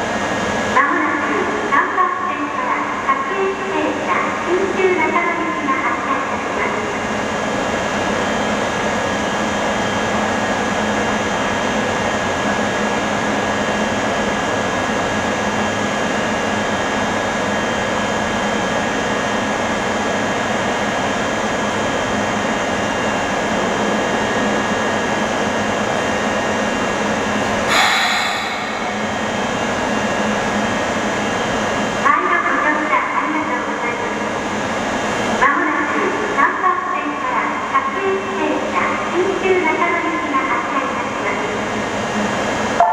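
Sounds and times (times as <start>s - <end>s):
electric train equipment hum: 27.3s - 30.1s
burst of hiss: 27.7s - 29.5s.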